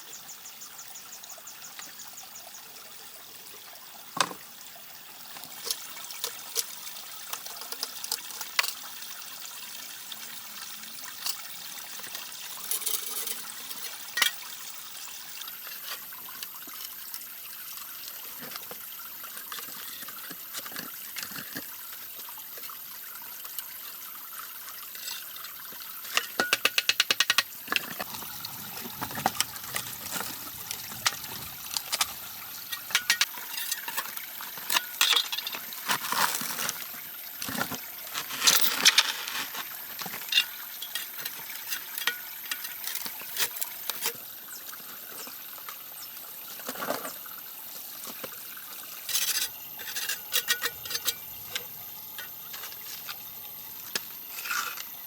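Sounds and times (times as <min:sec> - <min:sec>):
water trickling: 0:00.0 - 0:55.0
sharp clicks and knocks: 0:26.3 - 0:28.1.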